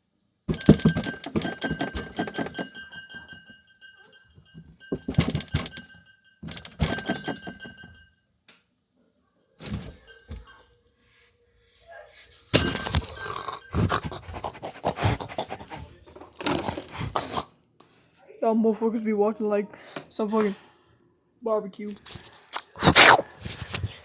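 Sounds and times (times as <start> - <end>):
rapid clattering and rattling knocks: 0.5 - 8.0.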